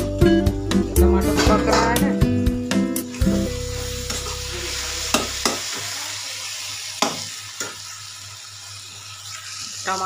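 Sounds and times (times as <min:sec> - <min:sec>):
food sizzling in a pan: 0:00.0 - 0:10.0
spatula knocking on pan: 0:05.1 - 0:05.7.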